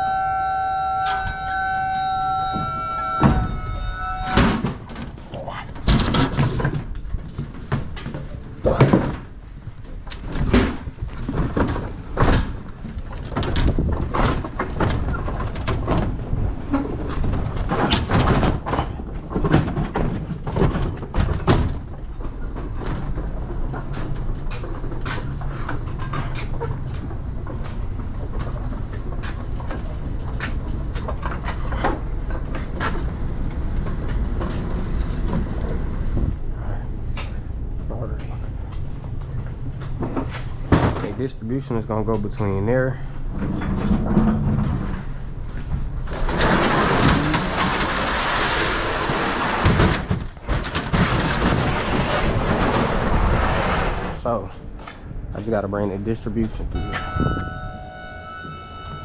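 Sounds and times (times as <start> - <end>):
doors and cargo clattering: 0.0 - 59.0
low vehicle rumble: 0.0 - 59.0.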